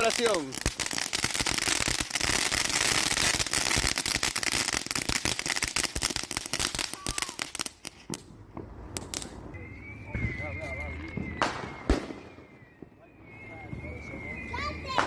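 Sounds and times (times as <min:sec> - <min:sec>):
fireworks crackling: 0:00.0 - 0:15.0.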